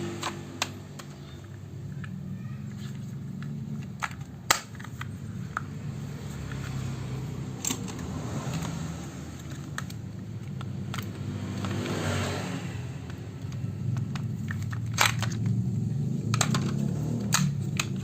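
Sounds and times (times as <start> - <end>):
plastic toy parts clicking: 0.0 - 6.9, 7.6 - 12.0, 13.0 - 18.0.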